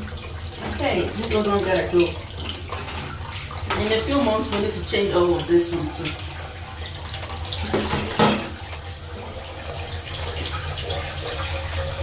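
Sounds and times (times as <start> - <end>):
toilet tank refilling: 0.0 - 12.0
knock in pipes: 7.6 - 8.6.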